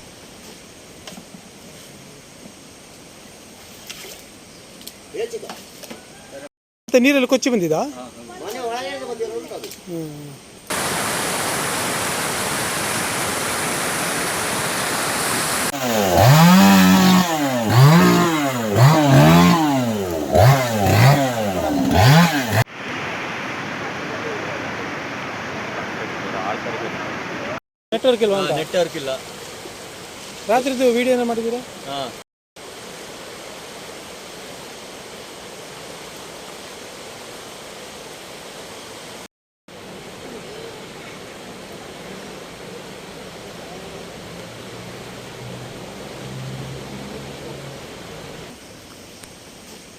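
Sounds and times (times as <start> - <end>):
rushing floodwater: 10.7 - 20.1, 22.0 - 49.1
chainsaw revving: 15.7 - 22.7.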